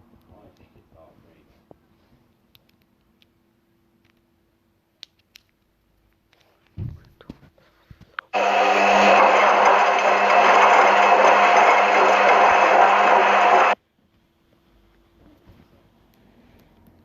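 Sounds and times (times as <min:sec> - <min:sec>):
washing machine motor whirring: 0:08.4 - 0:13.8.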